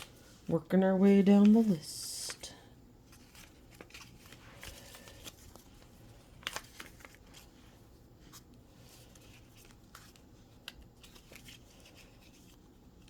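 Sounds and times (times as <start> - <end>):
plastic packaging rustling: 0.0 - 13.0.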